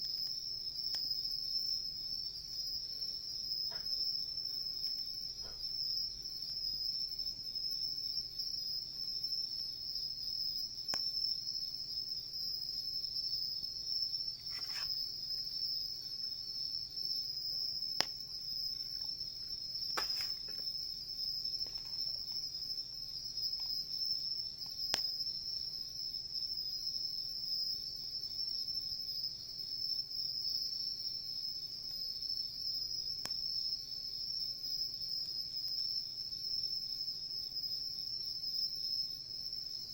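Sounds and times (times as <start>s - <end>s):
night insects trilling: 0.0s - 39.9s
campfire popping: 17.9s - 20.8s.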